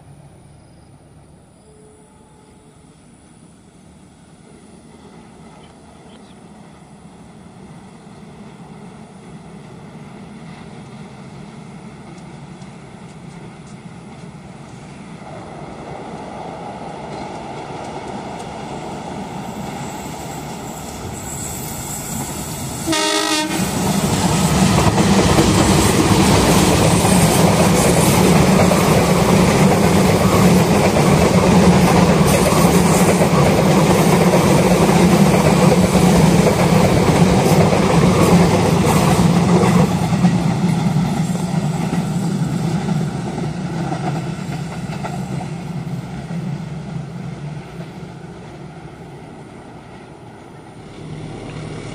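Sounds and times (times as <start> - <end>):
diesel locomotive engine droning: 0.0 - 51.9
train horn blast: 22.8 - 23.8.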